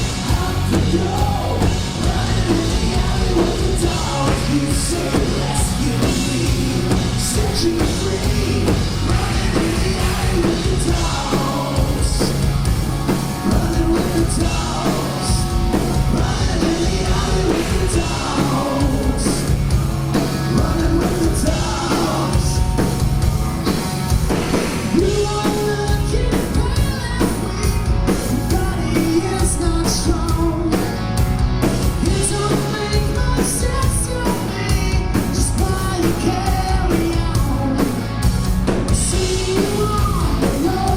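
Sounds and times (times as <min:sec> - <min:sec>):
lead vocal singing: 0:00.0 - 0:22.8, 0:24.9 - 0:30.9, 0:31.9 - 0:38.1, 0:38.9 - 0:40.9
hard rock band playing: 0:00.0 - 0:40.9.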